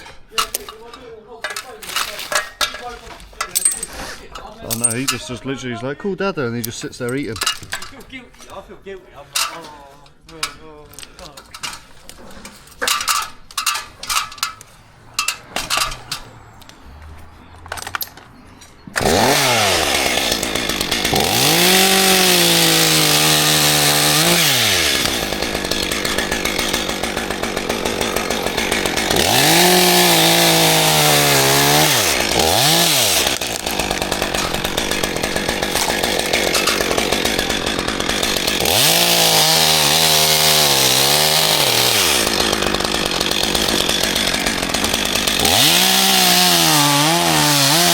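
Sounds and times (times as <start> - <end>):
chainsaw revving: 19.0 - 47.9.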